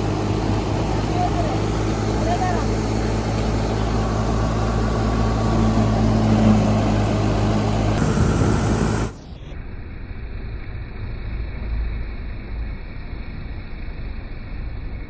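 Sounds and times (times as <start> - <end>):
combine harvester engine drone: 0.0 - 15.0.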